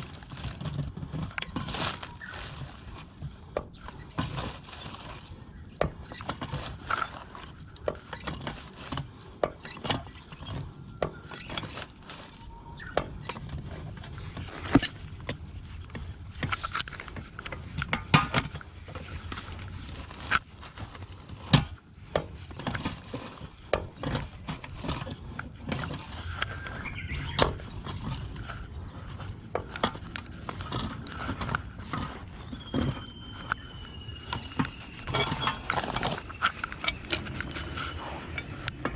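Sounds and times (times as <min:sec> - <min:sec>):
hand tools clicking and clinking: 0:10.9 - 0:15.4, 0:24.0 - 0:38.9.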